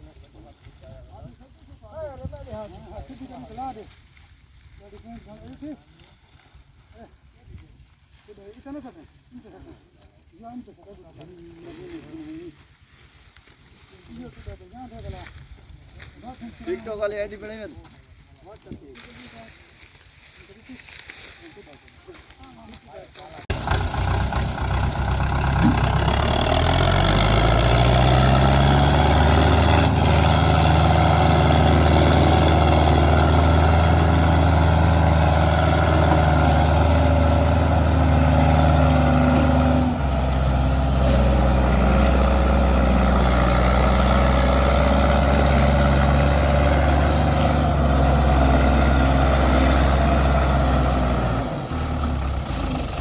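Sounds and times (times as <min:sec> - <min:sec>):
tractor diesel engine revving: 0:23.5 - 0:53.0.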